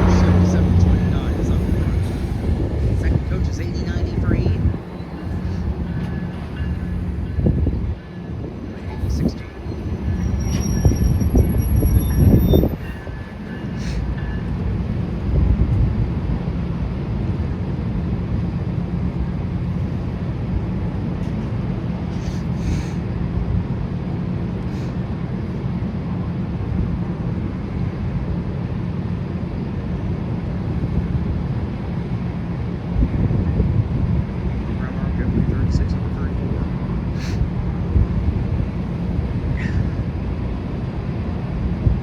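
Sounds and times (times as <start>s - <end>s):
train wheels rumbling on rail: 0.0s - 42.0s
high wheel squeal: 9.0s - 14.5s.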